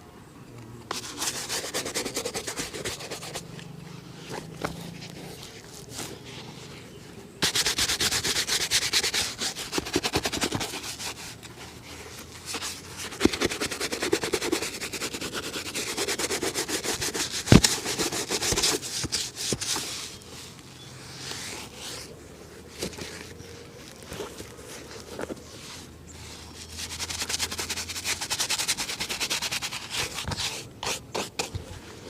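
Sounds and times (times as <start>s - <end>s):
brush scrubbing leather shoe: 0.9s - 3.4s, 7.4s - 20.2s, 23.9s - 32.0s.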